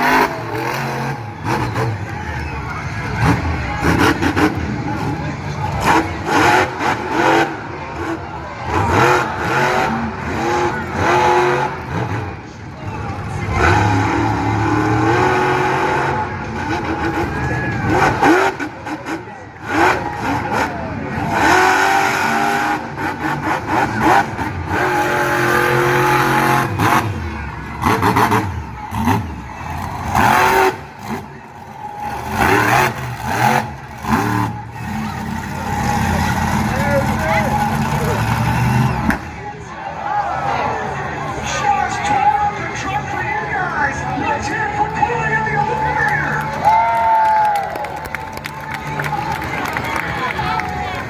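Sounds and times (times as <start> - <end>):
truck engine revving hard: 0.0 - 39.8.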